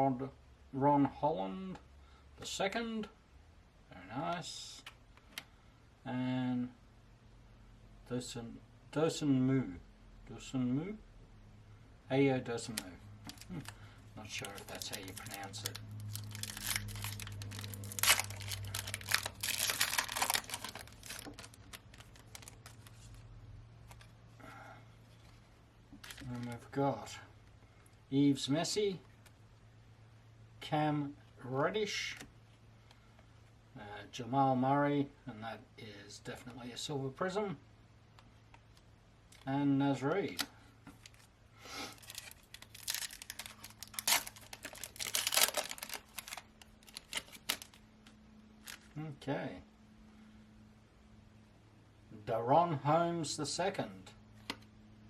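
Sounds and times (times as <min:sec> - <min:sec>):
foil wrapper crinkling: 0:12.7 - 0:24.1, 0:26.0 - 0:26.6, 0:41.9 - 0:47.8, 0:48.6 - 0:49.0.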